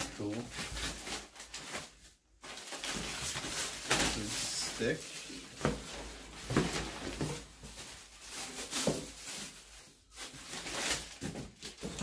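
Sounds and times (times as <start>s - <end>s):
packaging knocks and rustles: 0.0s - 12.0s.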